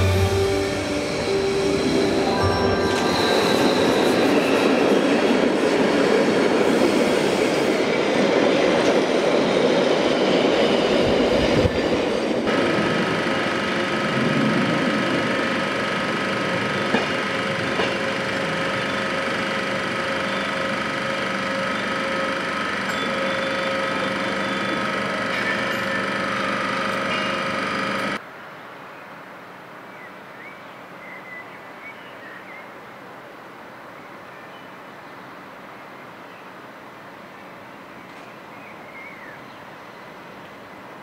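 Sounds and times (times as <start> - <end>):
railway hum with whine: 0.0 - 28.6, 32.4 - 41.0
train wheels clattering and squealing: 2.5 - 12.2, 16.2 - 28.2.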